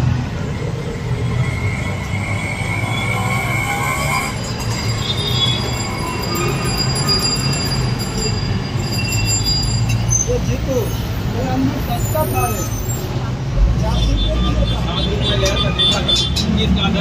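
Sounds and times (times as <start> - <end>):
train wheels squealing on rails: 0.5 - 13.4.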